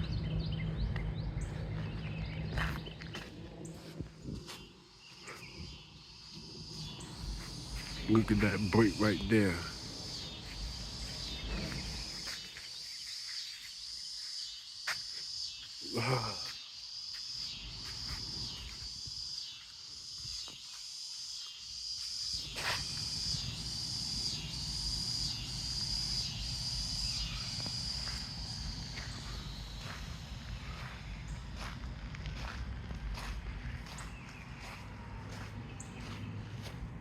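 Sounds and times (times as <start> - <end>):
wind rumbling on microphone: 0.0 - 4.8
high-pitched insect chorus: 0.0 - 37.0.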